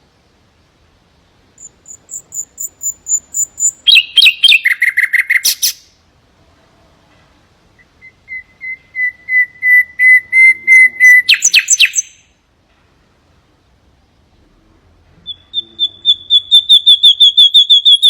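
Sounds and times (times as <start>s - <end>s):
nightingale singing: 1.6s - 6.0s, 7.7s - 12.4s, 15.2s - 18.0s.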